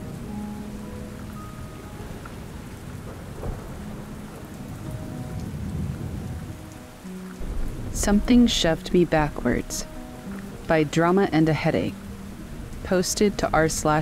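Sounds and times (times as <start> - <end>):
rain falling: 0.0 - 14.0
soft background music: 0.0 - 14.0
low rolling thunder: 2.7 - 6.7, 7.4 - 10.0.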